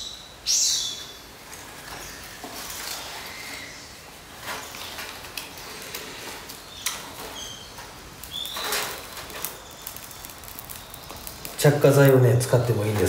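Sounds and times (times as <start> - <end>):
dry twigs clicking: 4.4 - 13.0
high bird chirps: 6.6 - 11.5.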